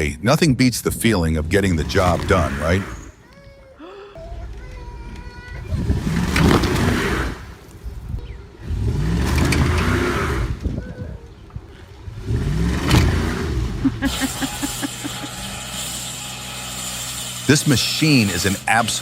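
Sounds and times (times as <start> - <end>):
truck engine revving: 1.3 - 3.2, 5.8 - 10.8, 12.0 - 19.0
machine hum: 12.2 - 18.7.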